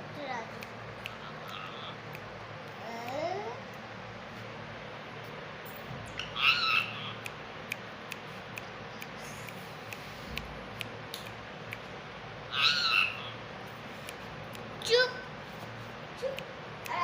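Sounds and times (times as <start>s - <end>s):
parakeet squawking: 1.0s - 2.2s, 6.2s - 7.3s, 12.5s - 13.5s.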